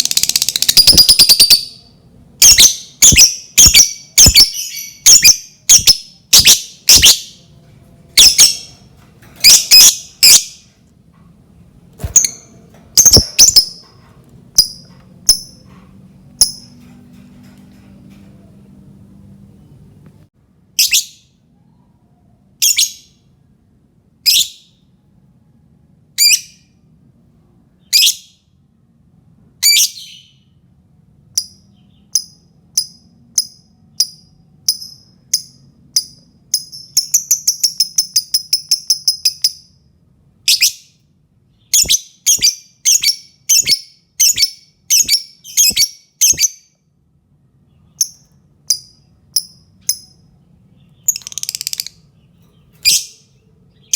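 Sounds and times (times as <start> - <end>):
lovebird calling: 2.4 - 7.4, 13.0 - 13.8.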